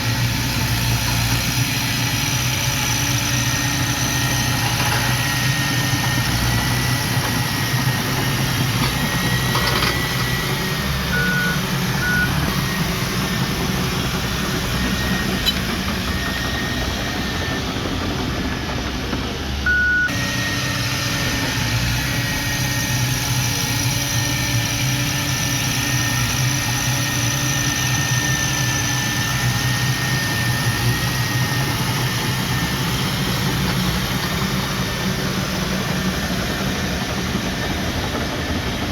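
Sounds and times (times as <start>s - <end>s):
heavy machinery diesel engines: 0.0s - 38.9s
short beeps: 11.1s - 12.5s, 19.7s - 20.2s.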